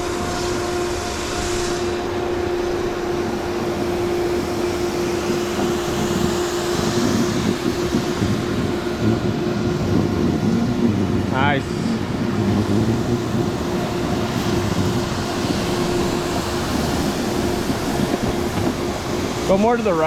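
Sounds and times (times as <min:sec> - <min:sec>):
low hum: 0:00.0 - 0:20.0
wind rushing over microphone: 0:00.0 - 0:20.0.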